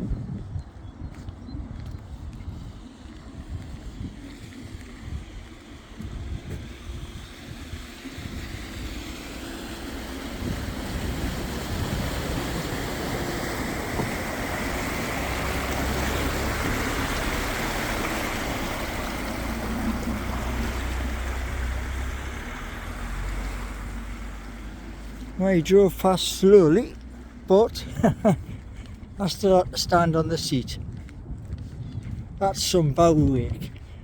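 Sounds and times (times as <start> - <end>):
vehicle engine running: 3.7 - 29.3
water surging and splashing: 4.2 - 29.7.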